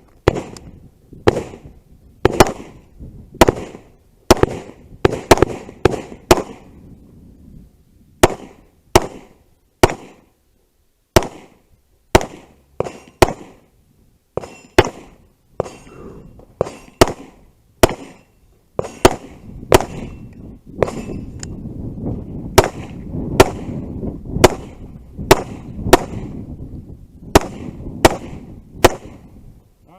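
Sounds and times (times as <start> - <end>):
gunshots: 0.2 - 0.6, 1.3 - 2.8, 3.4 - 6.8, 8.2 - 10.3, 11.2 - 13.6, 14.4 - 15.9, 16.6 - 20.2, 20.8 - 21.2, 22.5 - 26.4, 27.3 - 29.2.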